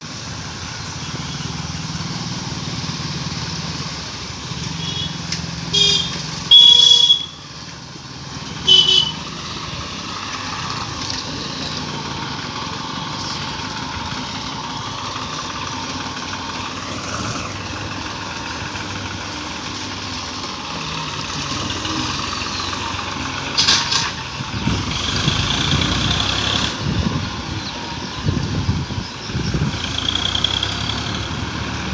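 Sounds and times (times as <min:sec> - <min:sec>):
diesel tractor engines running: 0:00.0 - 0:31.9
horns honking: 0:04.6 - 0:07.7, 0:08.4 - 0:09.7.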